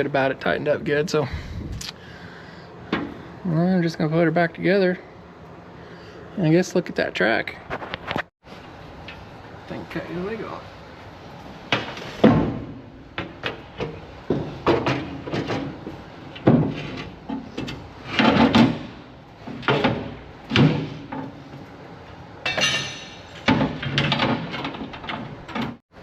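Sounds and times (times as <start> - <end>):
knocks and clanks of tools: 11.7 - 21.7, 22.4 - 25.8.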